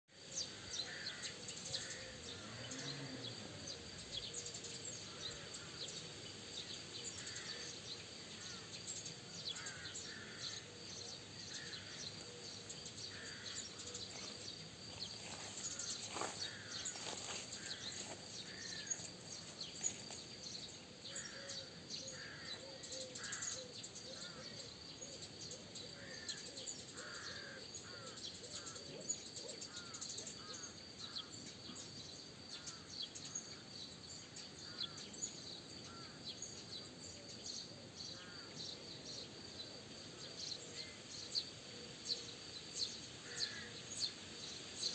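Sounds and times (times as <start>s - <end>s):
faint background hiss: 0.1s - 44.9s
birds chirping: 0.3s - 28.8s.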